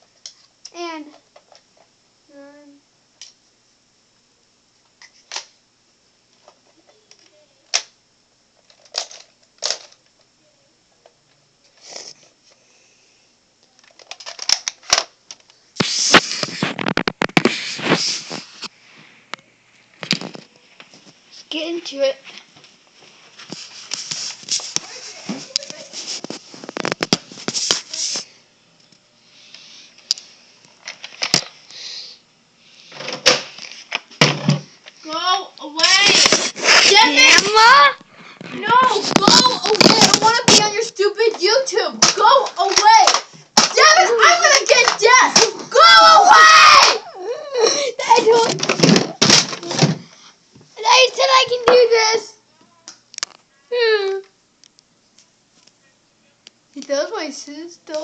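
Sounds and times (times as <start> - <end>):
rustling handling noise: 13.8 - 28.3, 35.8 - 45.9.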